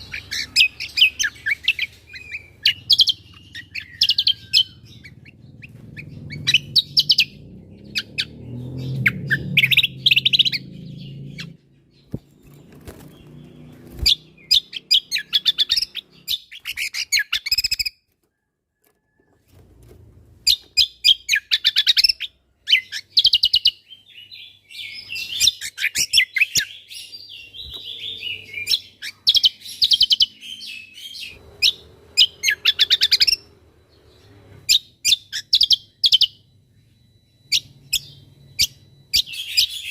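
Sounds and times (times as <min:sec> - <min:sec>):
bird singing sharp chirps: 0:00.0 - 0:17.9.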